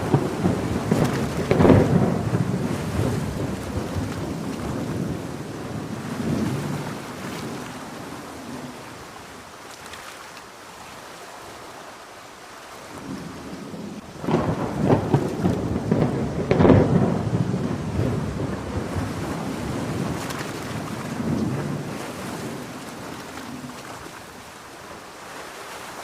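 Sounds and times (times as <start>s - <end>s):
thunder rolling: 0.0s - 8.7s, 13.0s - 23.8s
heavy rain: 0.0s - 26.0s.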